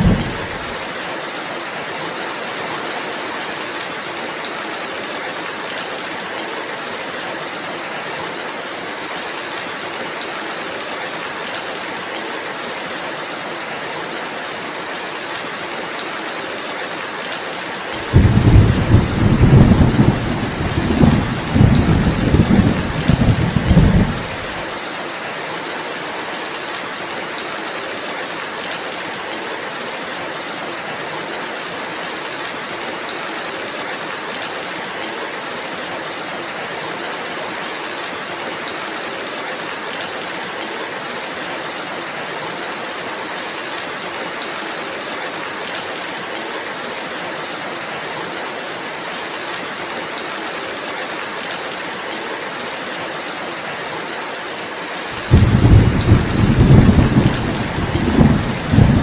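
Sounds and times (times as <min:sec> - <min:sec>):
thunder rumbling: 0:00.0 - 0:00.7, 0:18.0 - 0:24.6, 0:55.2 - 0:59.0
steady rainfall: 0:00.0 - 0:59.0.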